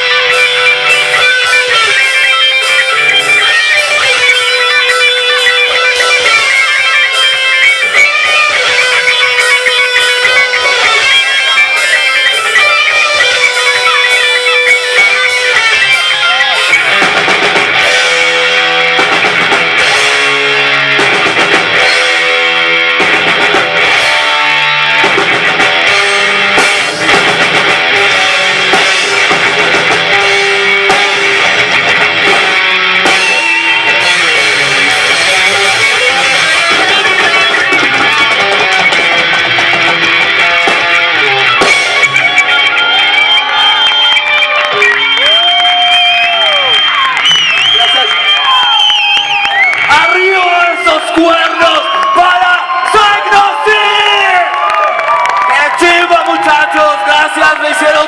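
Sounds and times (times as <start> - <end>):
rock band chord stabs: 0.0 - 48.3
drum kit: 0.0 - 53.0
distorted electric guitar: 0.0 - 58.0.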